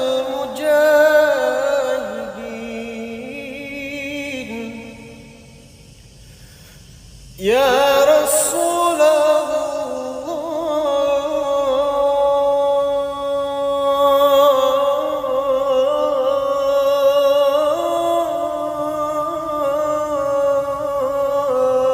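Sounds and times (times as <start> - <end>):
person singing unaccompanied: 0.0 - 5.7, 7.4 - 21.9.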